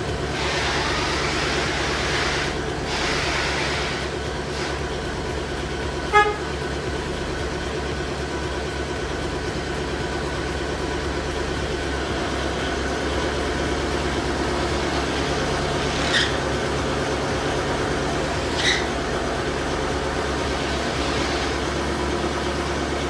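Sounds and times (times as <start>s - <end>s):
steady low hum: 0.0s - 23.0s
vehicle horn toot: 6.0s - 7.6s.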